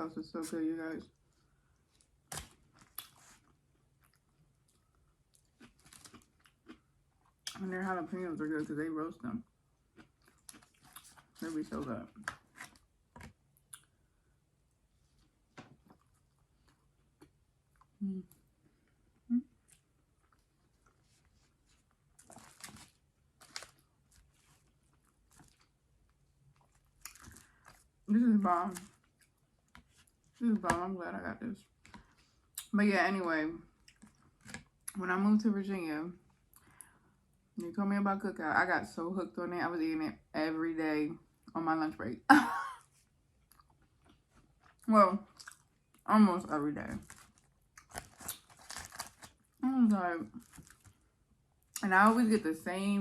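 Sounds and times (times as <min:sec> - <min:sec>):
chewing and crunching: 0:01.2 - 0:07.6, 0:09.8 - 0:14.0, 0:15.0 - 0:30.4, 0:33.7 - 0:35.0, 0:43.4 - 0:46.1, 0:46.9 - 0:49.6, 0:50.3 - 0:51.8.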